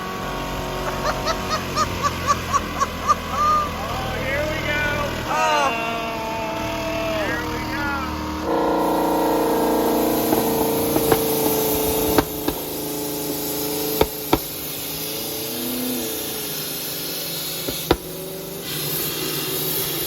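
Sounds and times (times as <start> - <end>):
sharp cracks: 10.0 - 15.2.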